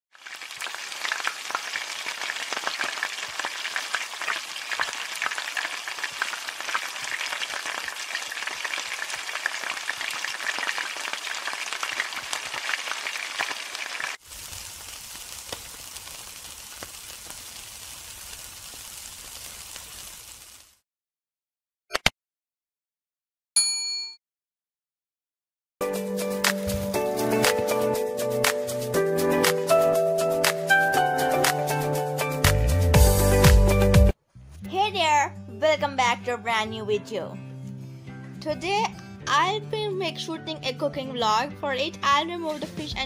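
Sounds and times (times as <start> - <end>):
food frying in hot oil: 0.1 - 20.8
meat sizzling on a grill: 0.2 - 20.8.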